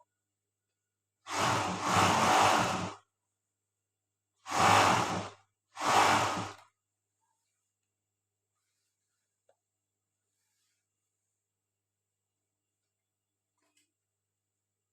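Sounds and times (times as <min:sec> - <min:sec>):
overlock sewing machine stitching: 0:01.3 - 0:03.0, 0:04.5 - 0:06.6.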